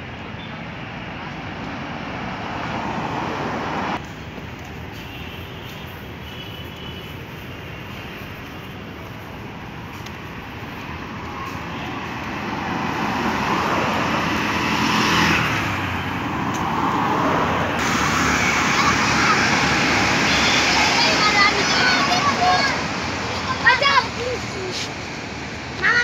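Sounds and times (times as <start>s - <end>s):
motor vehicles passing close by: 10.0s - 26.0s.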